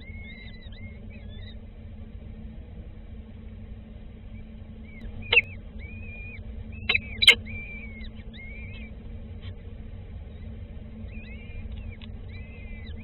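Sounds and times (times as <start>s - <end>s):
steady low hum: 0.0s - 13.0s
birds whistling high notes: 6.9s - 8.8s.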